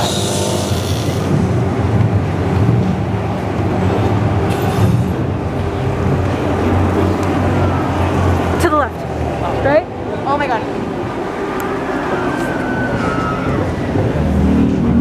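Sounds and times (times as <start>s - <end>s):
road noise: 0.0s - 15.0s
tram engine drone: 0.0s - 15.0s.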